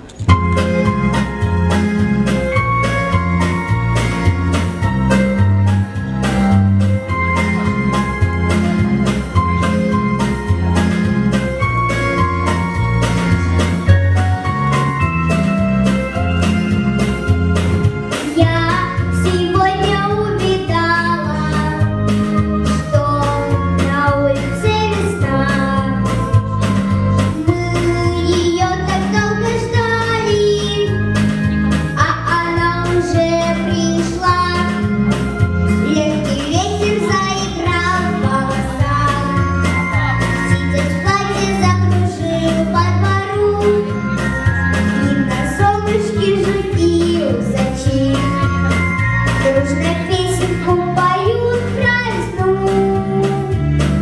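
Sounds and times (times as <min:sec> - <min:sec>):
music with steady beat: 0:00.2 - 0:54.0
girl singing: 0:18.2 - 0:21.9, 0:22.6 - 0:26.2, 0:27.3 - 0:31.1, 0:32.0 - 0:34.9, 0:35.8 - 0:44.1, 0:44.9 - 0:48.7, 0:49.4 - 0:53.6.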